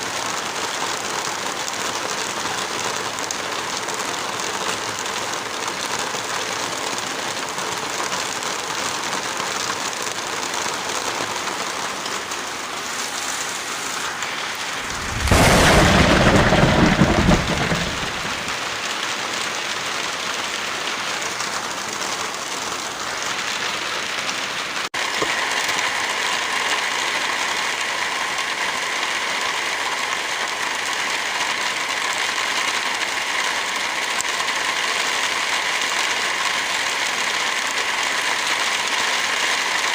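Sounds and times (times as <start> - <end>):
heavy rain falling: 0.0 - 39.9
deep rumble: 14.7 - 18.6.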